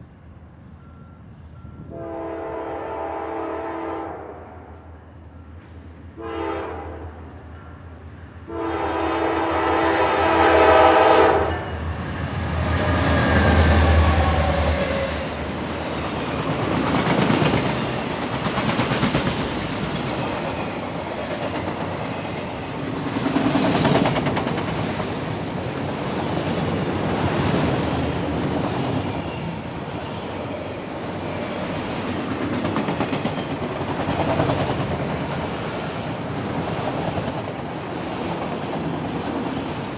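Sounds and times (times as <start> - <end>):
diesel locomotive engines rumbling: 0.0 - 39.9
train horn blasts: 1.7 - 4.8, 6.2 - 7.2, 8.5 - 11.8
train wheels clicking over rail joints: 12.8 - 29.7.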